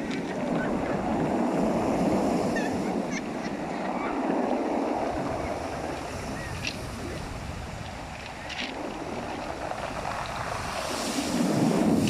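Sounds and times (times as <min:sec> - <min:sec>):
sea: 0:00.0 - 0:12.0
wind: 0:00.0 - 0:12.0
seabirds calling: 0:02.1 - 0:04.6.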